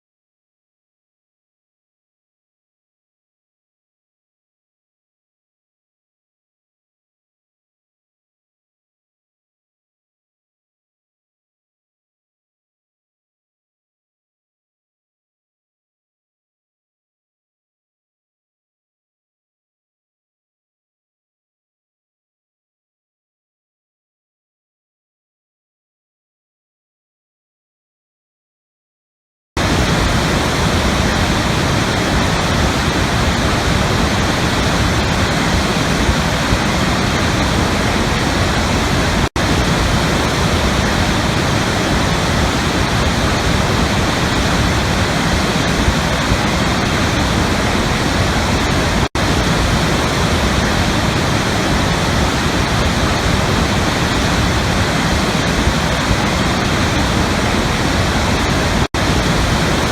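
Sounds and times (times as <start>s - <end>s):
waterfall roaring: 29.6s - 59.9s.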